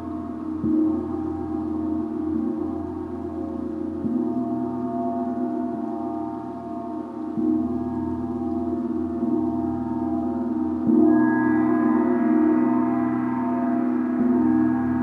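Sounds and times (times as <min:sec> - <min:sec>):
gong ringing: 0:11.0 - 0:15.0.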